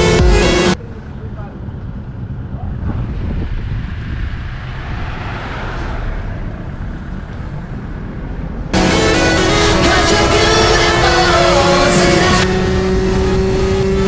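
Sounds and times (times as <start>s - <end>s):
background music: 0.0s - 0.8s, 8.8s - 14.0s
wind and motion rumble: 0.8s - 8.8s.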